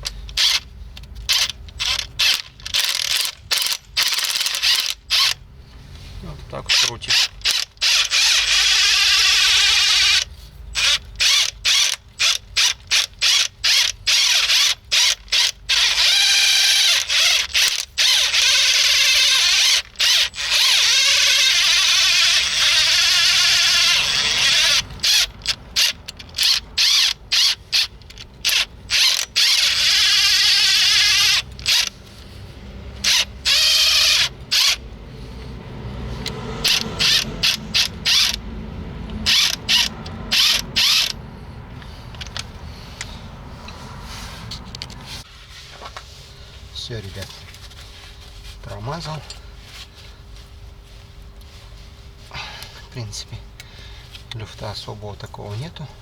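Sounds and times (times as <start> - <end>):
ratchet clicking: 0.0 - 5.4, 6.8 - 32.0, 33.0 - 34.8, 36.2 - 38.4, 39.0 - 41.2.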